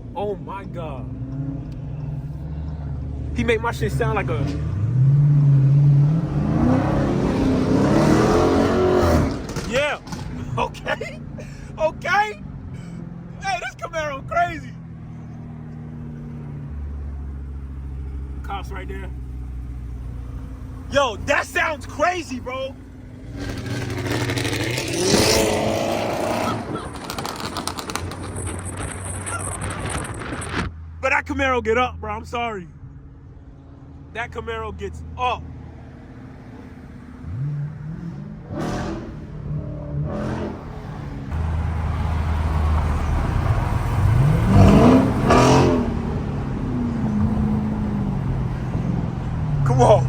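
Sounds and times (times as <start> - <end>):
car engine accelerating hard: 1.0 - 11.6, 23.0 - 30.7, 35.6 - 50.0.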